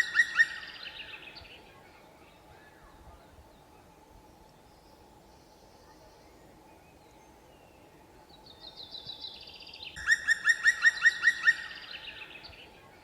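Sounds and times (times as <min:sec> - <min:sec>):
bird calling ringing notes: 0:10.0 - 0:12.3.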